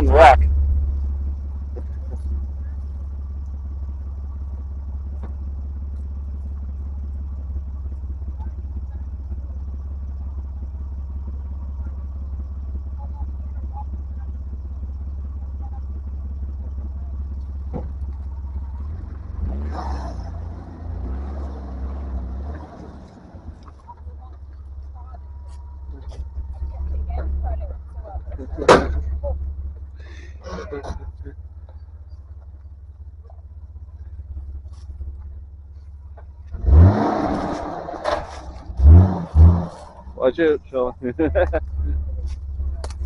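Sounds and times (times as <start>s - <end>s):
off-road engine rumbling and revving: 0.0s - 43.0s.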